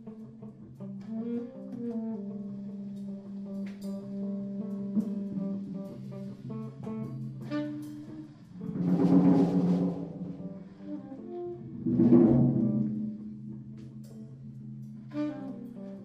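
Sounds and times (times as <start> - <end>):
guitar playing free jazz: 0.0 - 16.0
percussion hits: 8.6 - 10.6.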